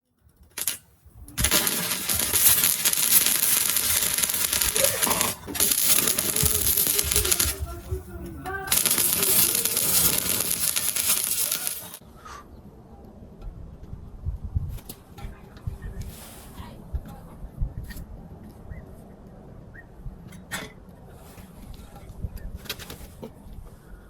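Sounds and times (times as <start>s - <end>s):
arc welding crackling: 0.3s - 12.0s.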